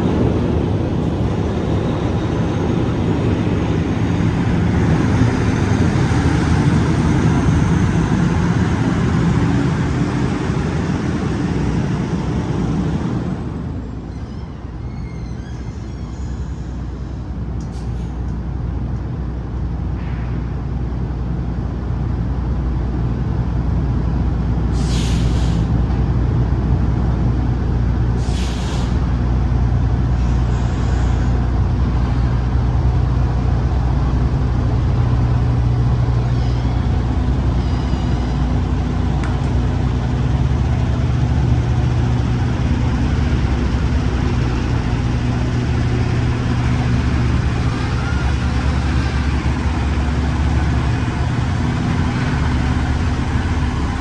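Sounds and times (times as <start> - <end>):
diesel truck engine running: 0.0 - 14.0, 38.4 - 54.0
air brake hisses: 24.8 - 25.7, 28.2 - 29.0.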